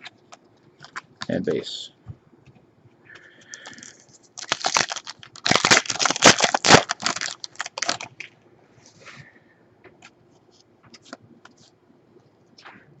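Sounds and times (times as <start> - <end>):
foil wrapper crinkling and tearing: 3.6 - 8.2.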